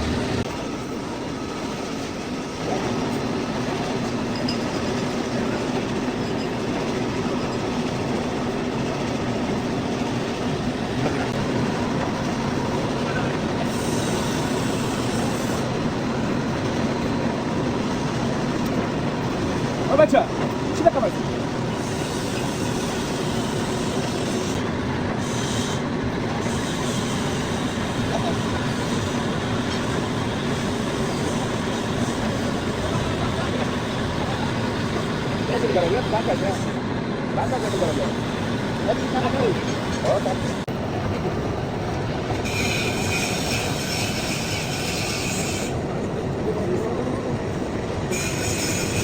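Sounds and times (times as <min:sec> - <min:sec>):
metal lathe running: 0:00.0 - 0:49.0
cutting tool screeching on metal: 0:25.2 - 0:33.5, 0:42.4 - 0:45.8, 0:48.1 - 0:49.0.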